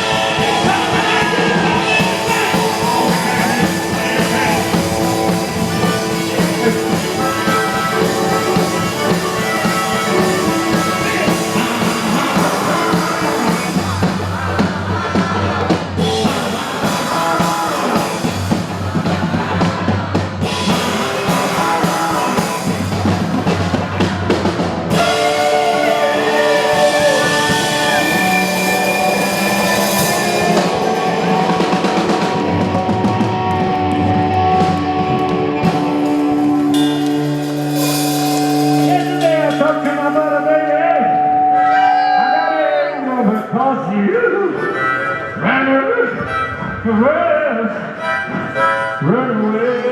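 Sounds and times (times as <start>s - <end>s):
rock band playing live: 0.0s - 43.6s.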